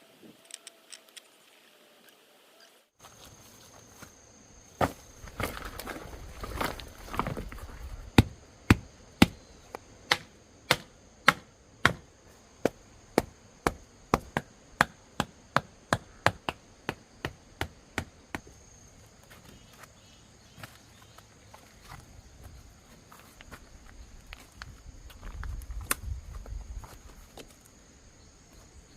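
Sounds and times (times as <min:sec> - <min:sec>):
wood being chopped: 0:08.2 - 0:09.4, 0:10.1 - 0:18.5.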